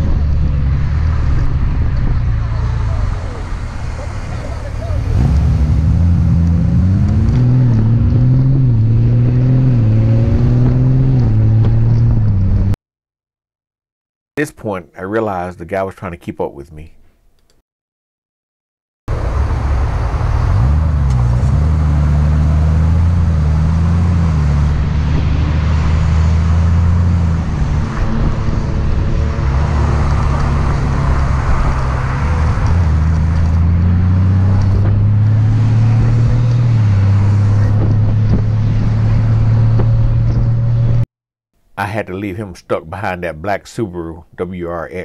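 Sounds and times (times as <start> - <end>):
motorcycle engine accelerating: 0.0 - 12.8, 19.1 - 41.0
wind and road noise: 0.0 - 12.8, 19.1 - 41.1.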